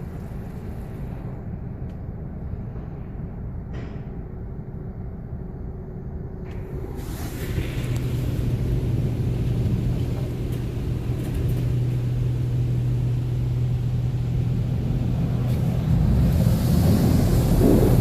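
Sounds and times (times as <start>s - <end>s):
car wash machinery humming: 0.0s - 18.0s
rushing water noise: 6.7s - 11.0s, 15.0s - 18.0s.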